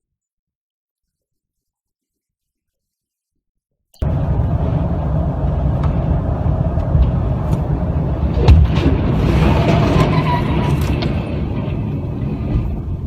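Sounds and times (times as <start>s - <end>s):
engine and tyres rumbling: 4.0s - 13.0s.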